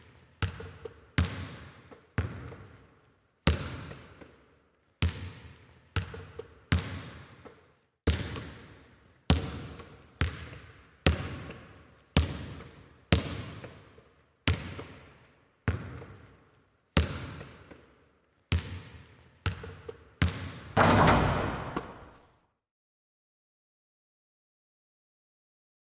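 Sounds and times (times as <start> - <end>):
basketball bouncing on court: 0.4 - 2.8, 5.0 - 8.7, 9.3 - 13.8, 15.7 - 16.3, 17.0 - 17.8, 18.5 - 22.2
basketball hitting hoop clatter: 20.8 - 22.2.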